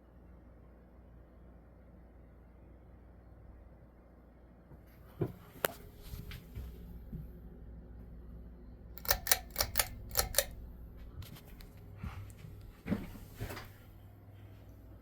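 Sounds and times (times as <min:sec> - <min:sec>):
ceiling fan motor humming: 0:04.8 - 0:15.0
sharp clicks: 0:09.0 - 0:10.6.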